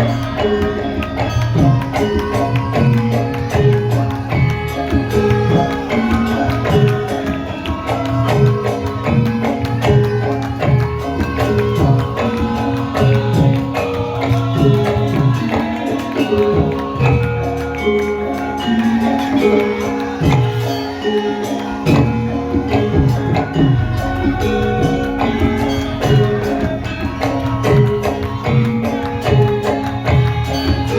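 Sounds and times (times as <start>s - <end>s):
hand drum strokes: 0.0s - 30.9s
ringing metallophone notes: 0.0s - 30.9s.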